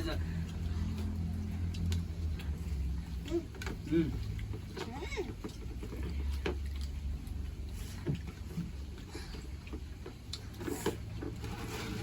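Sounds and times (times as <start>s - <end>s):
low steady hum: 0.0s - 12.0s
people chewing: 0.0s - 12.0s
small clicks and smacks: 0.4s - 2.6s.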